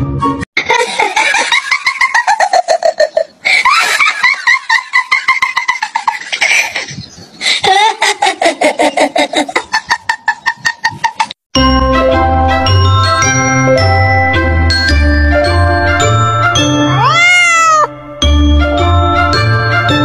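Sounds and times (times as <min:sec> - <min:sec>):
high-pitched laughter: 0:00.6 - 0:11.4.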